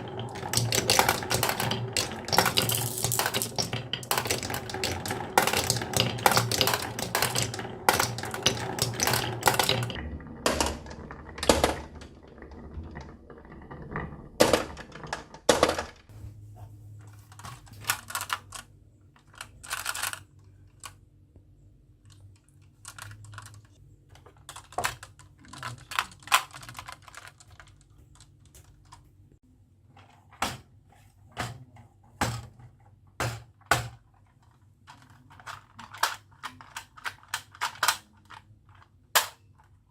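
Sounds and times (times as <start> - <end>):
marbles clattering down wooden track: 0.0 - 16.1.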